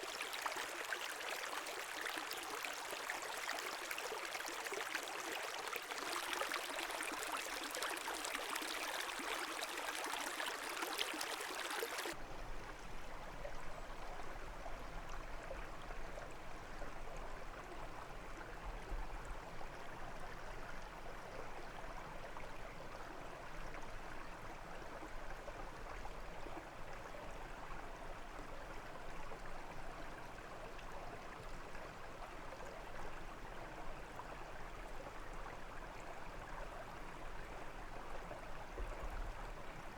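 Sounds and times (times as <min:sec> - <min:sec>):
brook water rushing: 0:00.0 - 0:12.2.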